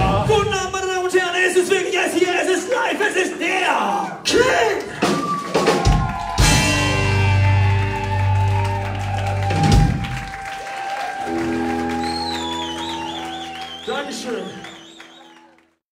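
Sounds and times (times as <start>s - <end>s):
reggae band sustained chord: 6.4s - 8.6s.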